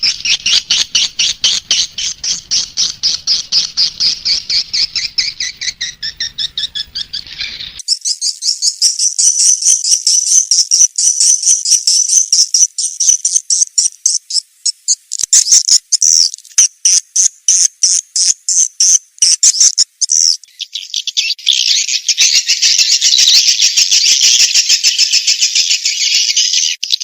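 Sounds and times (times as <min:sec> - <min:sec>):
swiftlets chirping: 0:00.0 - 0:07.8
twittering bird chorus: 0:00.0 - 0:13.4, 0:20.0 - 0:27.0.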